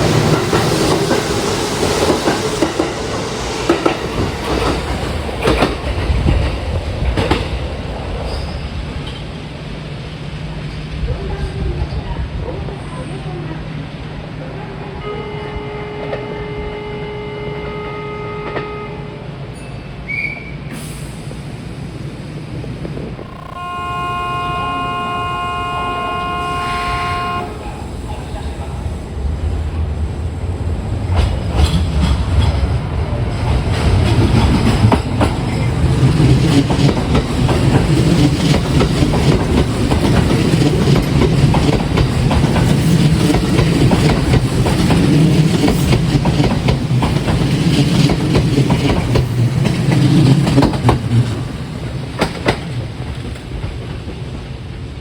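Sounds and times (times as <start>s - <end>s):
train rumble and wheel clacks: 0.0s - 55.0s
multi-tone train horn: 14.6s - 19.6s, 23.2s - 28.2s.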